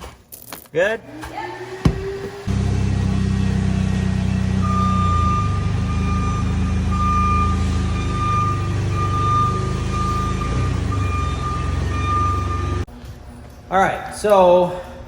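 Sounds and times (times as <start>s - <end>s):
machine humming: 1.0s - 12.9s.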